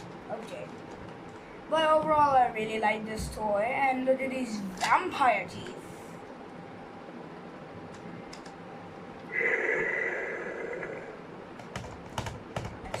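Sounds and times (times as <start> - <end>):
steady sound: 8.6 - 11.7.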